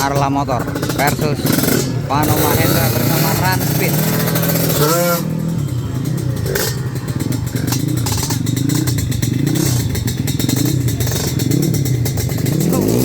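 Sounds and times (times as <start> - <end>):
motorcycle engines revving: 0.0 - 13.0.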